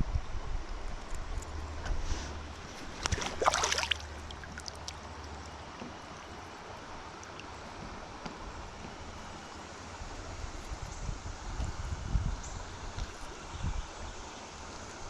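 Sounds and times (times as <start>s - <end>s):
river water flowing: 0.6s - 11.6s, 12.6s - 15.0s
crackling splash: 2.7s - 5.6s.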